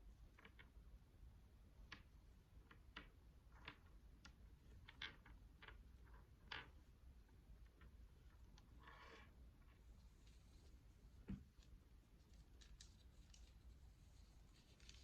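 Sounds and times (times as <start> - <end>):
prayer beads clicking: 11.5 - 13.8.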